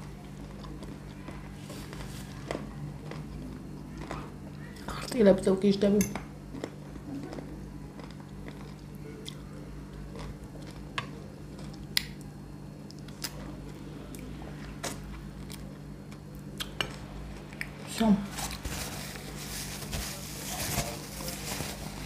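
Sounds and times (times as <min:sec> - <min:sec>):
chewing with wet mouth clicks: 0:06.5 - 0:09.5, 0:10.1 - 0:13.4, 0:15.4 - 0:17.8.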